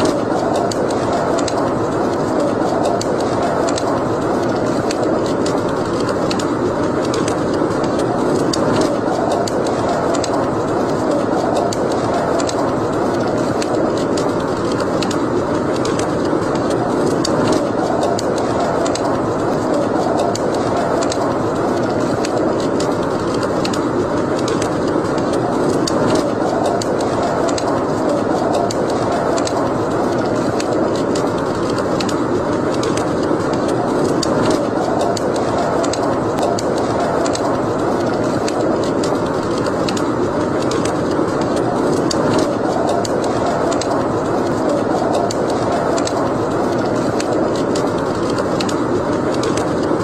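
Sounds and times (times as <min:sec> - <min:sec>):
fire crackles and pops: 0:00.0 - 0:50.0
roar of flame: 0:00.0 - 0:50.0.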